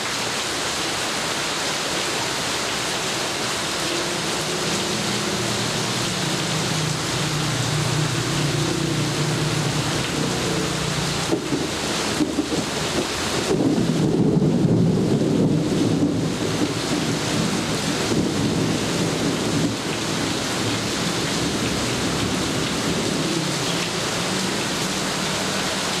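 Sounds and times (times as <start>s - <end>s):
heavy rain: 0.0s - 26.0s
thunder rumbling: 4.5s - 24.8s.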